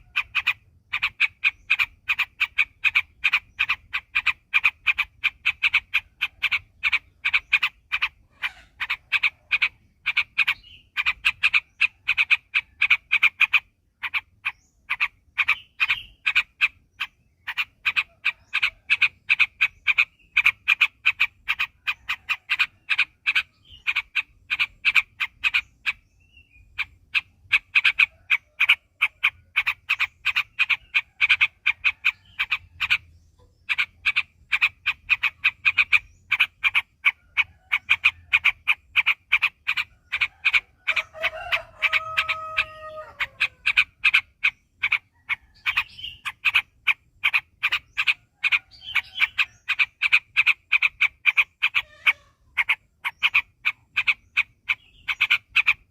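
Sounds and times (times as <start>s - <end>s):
bird chattering: 0.0s - 55.9s
low drawn-out bird call: 39.0s - 55.9s.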